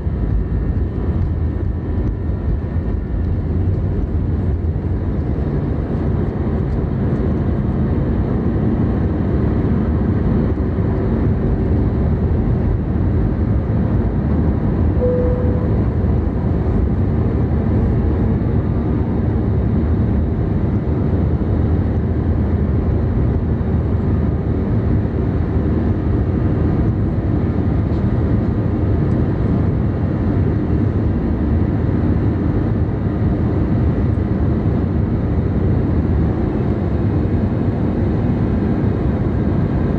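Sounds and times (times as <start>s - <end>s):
jet engine noise in cabin: 0.0s - 39.9s
short faint tone: 15.0s - 16.5s.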